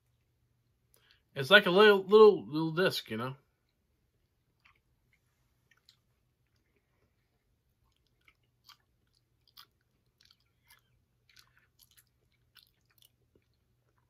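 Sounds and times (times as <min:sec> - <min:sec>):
low steady hum: 0:00.0 - 0:14.0
mouth clicks of chewing candy: 0:04.5 - 0:07.1, 0:07.8 - 0:14.0.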